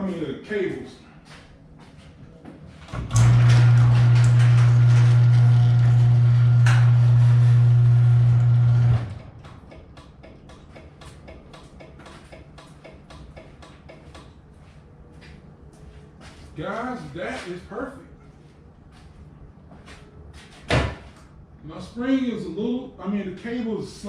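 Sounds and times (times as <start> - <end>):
garage door opener motor humming: 2.8 - 10.1.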